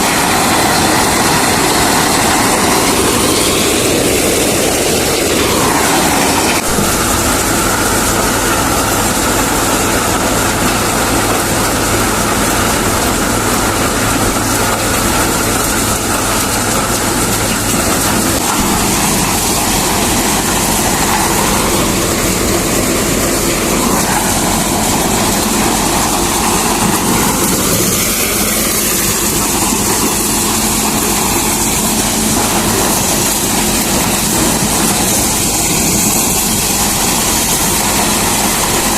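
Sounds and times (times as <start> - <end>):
thresher running: 0.0 - 38.9
tractor engine: 0.0 - 38.9.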